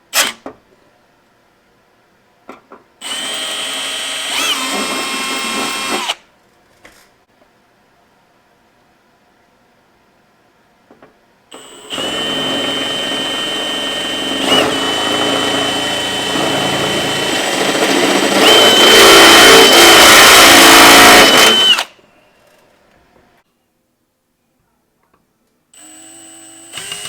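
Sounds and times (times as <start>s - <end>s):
power drill motor whine: 3.0s - 6.2s, 11.5s - 21.9s, 25.8s - 27.0s.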